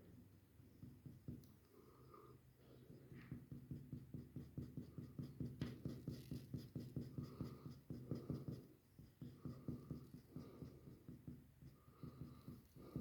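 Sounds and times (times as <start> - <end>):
drawing tool scratching on paper: 2.8 - 13.0.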